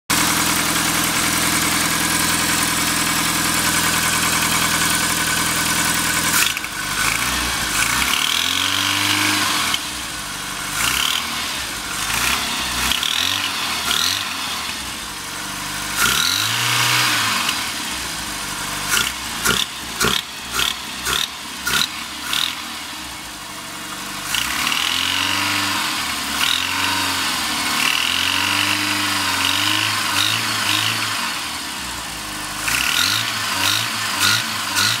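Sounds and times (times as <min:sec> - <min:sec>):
car engine revving: 0:00.1 - 0:35.0
harsh metallic engine knock: 0:18.9 - 0:22.6.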